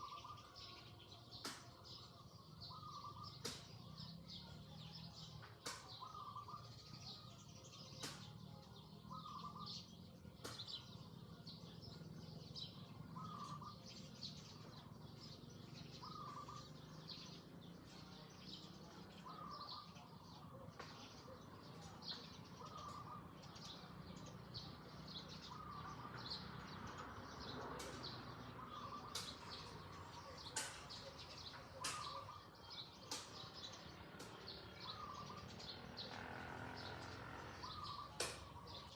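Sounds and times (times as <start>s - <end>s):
birds chirping: 0.0s - 38.9s
repeated short bird call: 27.4s - 36.2s.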